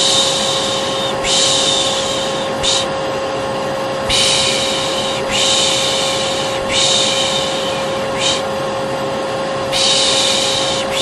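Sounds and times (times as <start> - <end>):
person shushing: 0.0 - 2.9, 4.1 - 8.5, 9.7 - 11.0
vacuum cleaner running: 0.0 - 11.0.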